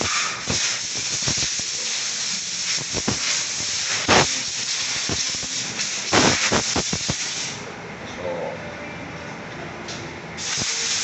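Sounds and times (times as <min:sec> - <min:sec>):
aerosol can spraying hiss: 0:00.0 - 0:07.6, 0:10.4 - 0:11.0.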